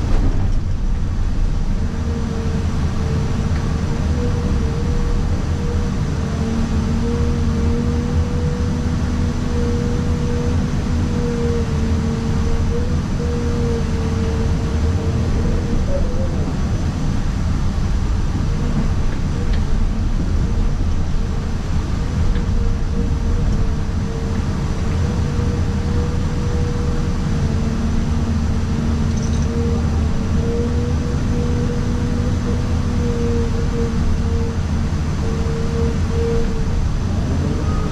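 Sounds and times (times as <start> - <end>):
excavator engine and hydraulics droning: 0.0 - 37.9.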